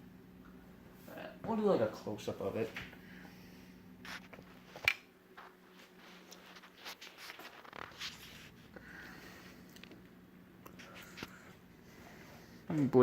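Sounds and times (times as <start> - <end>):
ceiling fan motor hum: 0.0 - 13.0.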